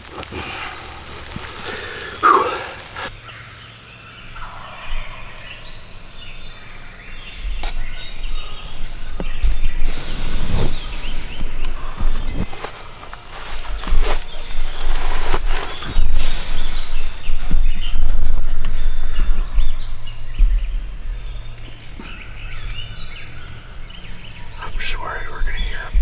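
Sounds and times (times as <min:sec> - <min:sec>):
low rumbling and rustling: 0:00.0 - 0:03.1, 0:05.6 - 0:24.7
turkey gobbling: 0:00.1 - 0:03.1.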